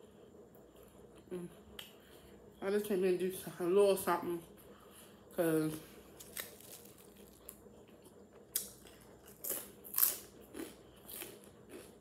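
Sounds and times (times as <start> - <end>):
potato chips crunching: 6.2 - 12.0.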